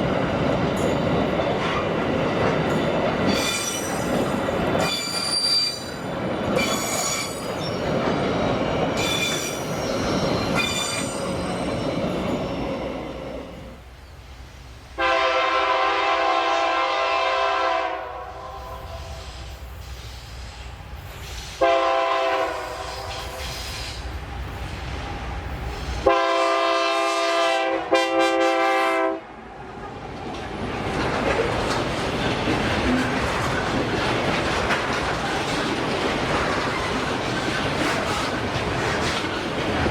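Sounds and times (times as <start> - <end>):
train wheels squealing on rails: 2.5 - 14.8, 18.2 - 26.1
locomotive horn blasts: 15.0 - 19.2, 21.6 - 23.3, 26.1 - 29.2
rumble of freight wagons: 29.7 - 39.9.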